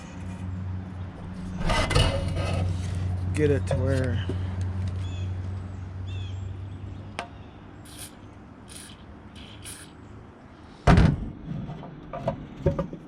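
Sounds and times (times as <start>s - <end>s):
aerosol spray hisses: 7.9s - 9.9s
loud thump: 10.8s - 11.3s.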